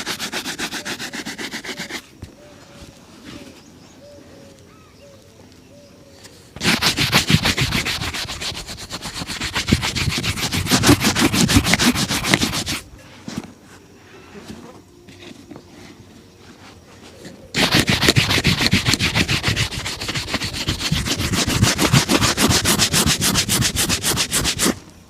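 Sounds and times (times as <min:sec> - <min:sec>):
brush scrubbing a shoe: 0:00.0 - 0:02.1, 0:06.6 - 0:12.8, 0:17.6 - 0:24.8.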